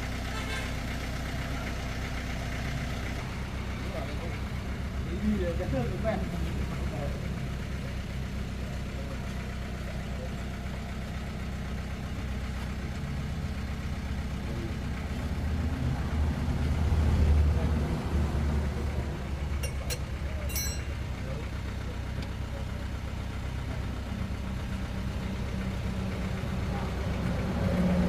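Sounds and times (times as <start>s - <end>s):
vehicle engine idling: 0.0s - 28.0s.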